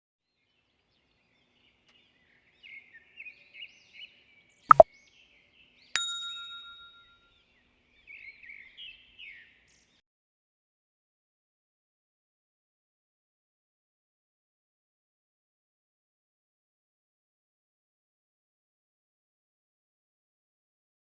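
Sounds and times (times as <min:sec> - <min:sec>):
bird chirping: 0:01.0 - 0:07.2
bell-like ding: 0:06.0 - 0:07.1.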